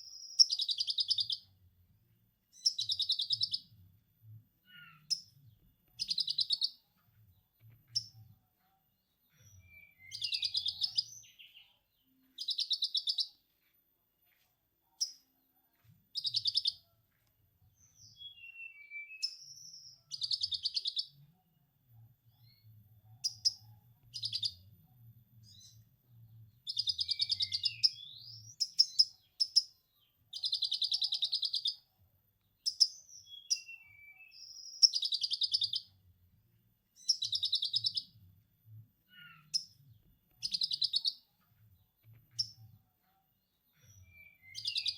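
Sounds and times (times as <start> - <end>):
bird chirps and whistles: 9.6 - 11.4, 18.1 - 21.0, 26.7 - 29.1, 32.7 - 35.8, 44.0 - 44.9.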